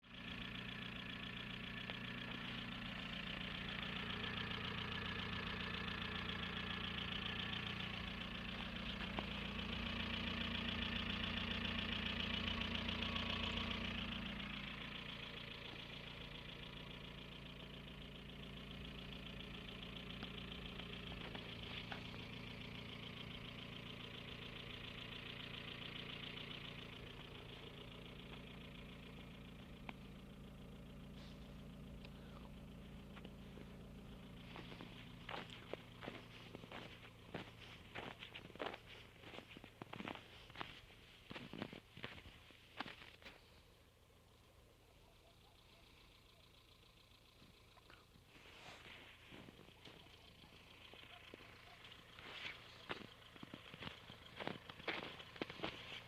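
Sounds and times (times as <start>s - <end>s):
car petrol engine running: 0.0s - 56.0s.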